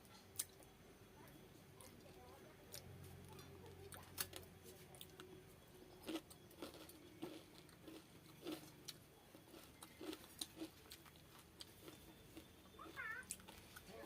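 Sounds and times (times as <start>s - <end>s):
wet chewing clicks and smacks: 0.3s - 0.7s.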